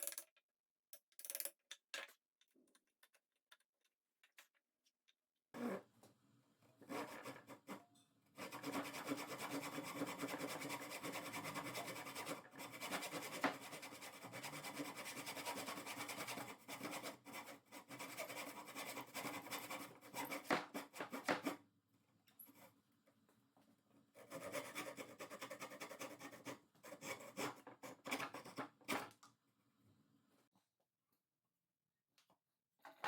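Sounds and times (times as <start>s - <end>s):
hand tool rasping on wood: 8.4s - 21.6s, 24.2s - 28.6s.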